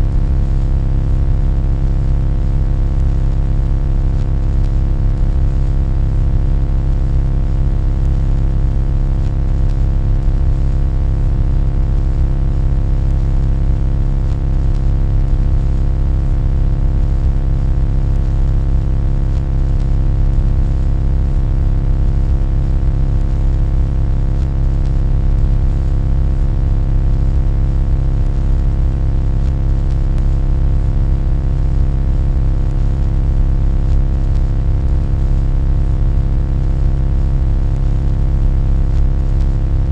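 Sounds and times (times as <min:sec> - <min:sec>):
loud low buzzy hum: 0:00.0 - 0:39.9.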